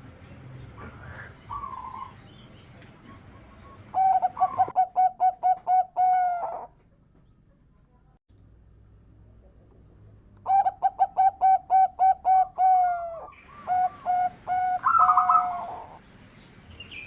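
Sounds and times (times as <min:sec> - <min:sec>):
dove cooing: 0:00.7 - 0:02.2, 0:02.9 - 0:06.8, 0:10.5 - 0:16.0.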